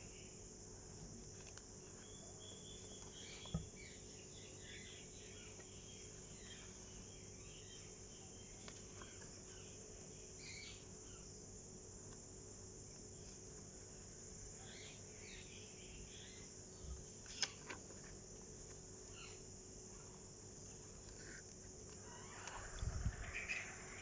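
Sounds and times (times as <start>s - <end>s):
steady hiss: 19.0s - 24.0s
small animals chirping: 22.0s - 24.0s.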